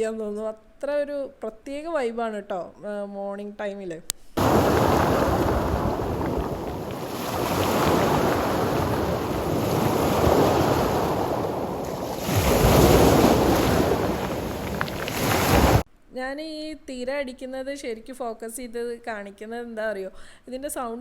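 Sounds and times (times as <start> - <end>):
waves breaking on pebble beach: 4.4 - 15.8
wind buffeting microphone: 4.4 - 15.8.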